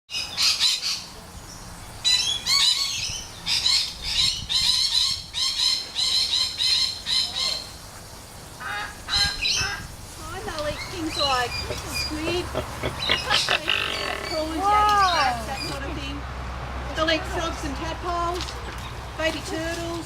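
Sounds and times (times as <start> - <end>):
birds squawking and chattering: 8.6 - 15.8.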